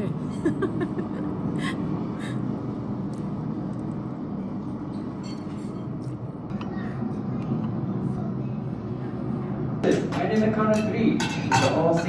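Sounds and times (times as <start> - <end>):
cutlery clinking on dishes: 5.2 - 5.8, 9.8 - 12.0.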